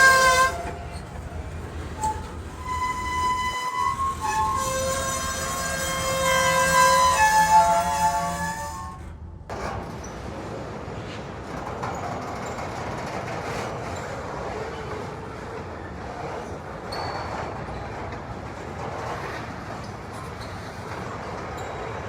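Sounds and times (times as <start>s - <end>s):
steel wheels hissing on rails: 0.0s - 9.2s
freight train rolling by: 0.0s - 22.0s.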